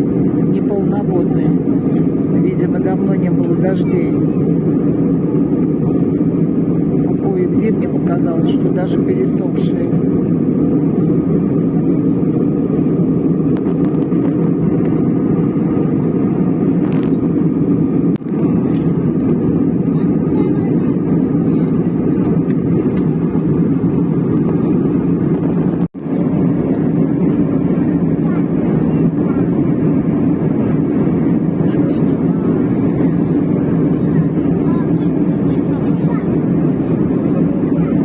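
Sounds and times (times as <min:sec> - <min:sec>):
jet airliner cabin drone: 0:00.0 - 0:38.0.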